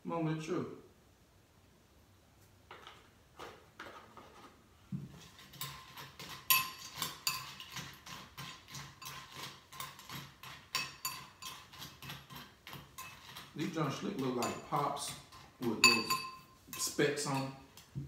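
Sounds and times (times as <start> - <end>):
metal spoon clinking against bowl: 5.5 - 13.5, 14.2 - 17.9.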